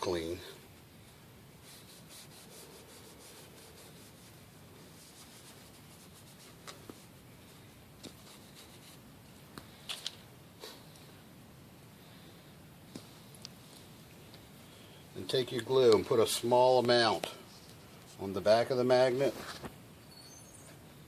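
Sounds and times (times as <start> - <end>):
scouring pad scrubbing a magnet: 1.7 - 6.6.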